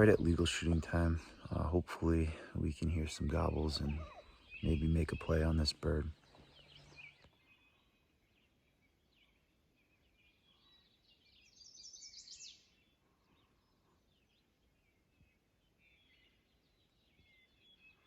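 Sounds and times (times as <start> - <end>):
faint songbirds calling: 0.0 - 18.0.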